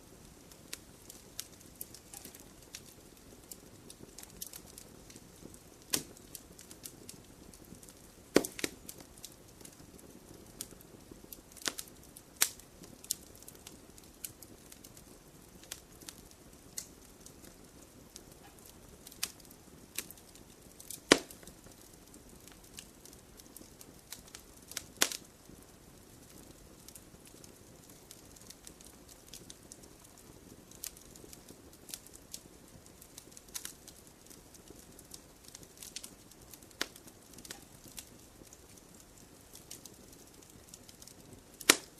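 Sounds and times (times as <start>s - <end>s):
campfire crackling and popping: 0.0s - 41.9s
flames rustling: 0.0s - 41.9s.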